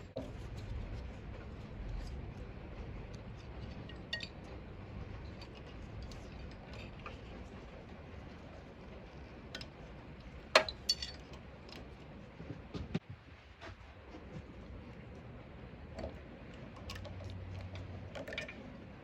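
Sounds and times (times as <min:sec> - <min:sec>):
metal tools clinking: 0:10.4 - 0:11.9.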